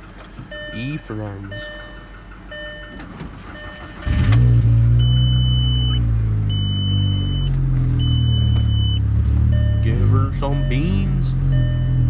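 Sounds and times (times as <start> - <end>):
car engine starting and idling: 0.0 - 12.0
high electronic beep: 5.0 - 12.0.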